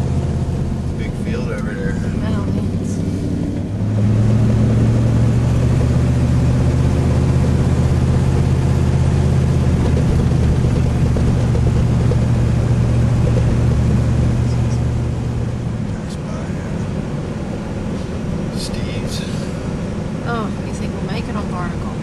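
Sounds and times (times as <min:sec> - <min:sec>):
car engine and road noise inside: 0:00.0 - 0:22.0.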